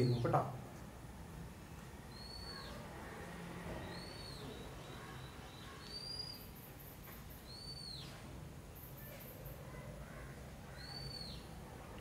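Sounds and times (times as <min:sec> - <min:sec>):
bird calling: 0:02.1 - 0:08.2, 0:08.8 - 0:11.6.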